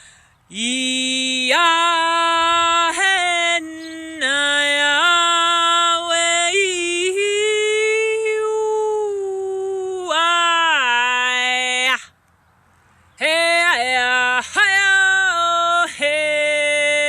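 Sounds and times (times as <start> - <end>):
woman chanting wordless syllables: 0.5 - 12.1.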